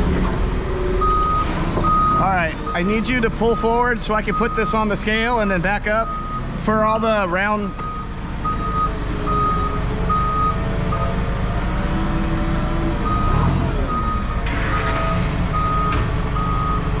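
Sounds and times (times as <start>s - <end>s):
reversing alarm beeping: 0.9s - 4.8s, 6.0s - 6.5s, 7.7s - 11.2s, 13.0s - 17.0s
vehicle engine running: 5.2s - 17.0s.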